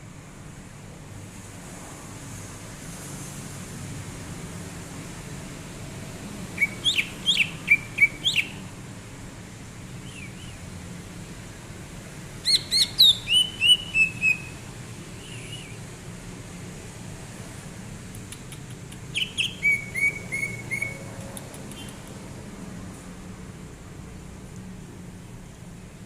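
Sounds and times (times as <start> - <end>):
bird whistling song: 6.5 - 8.6, 10.0 - 10.6, 12.4 - 14.6, 15.2 - 15.8, 19.1 - 21.1, 21.7 - 22.1.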